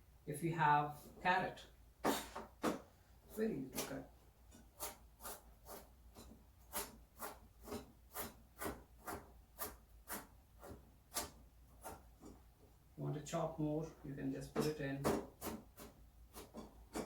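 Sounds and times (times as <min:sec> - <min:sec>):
knife slicing carrot: 0:04.8 - 0:12.1.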